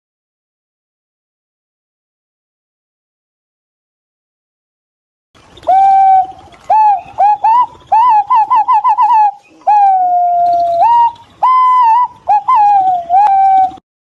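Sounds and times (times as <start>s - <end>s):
pigeons whistling: 5.6s - 13.8s.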